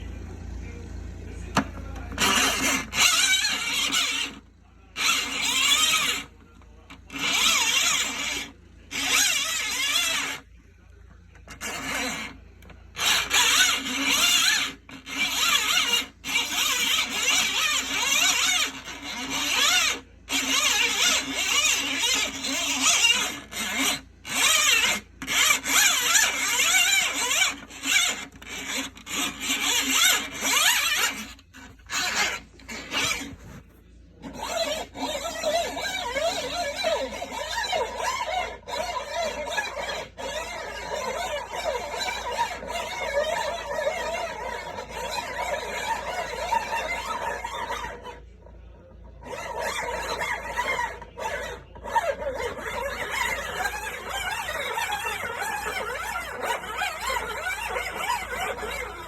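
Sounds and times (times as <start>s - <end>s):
shrill squeaking and scraping: 0.0s - 59.0s.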